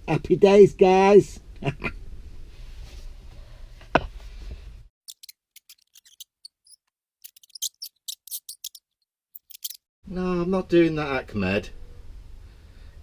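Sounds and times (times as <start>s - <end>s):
faint clicks and scratchy ticks: 5.1s - 8.8s.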